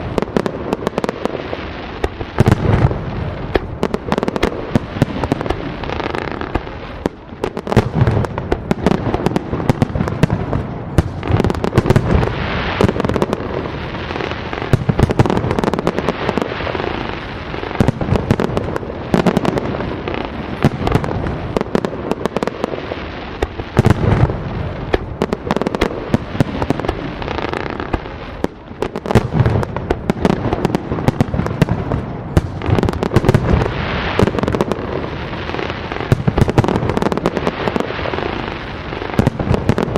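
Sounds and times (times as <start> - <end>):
deep firework booms: 0.0 - 39.9
fireworks bangs and crackling: 0.0 - 39.9.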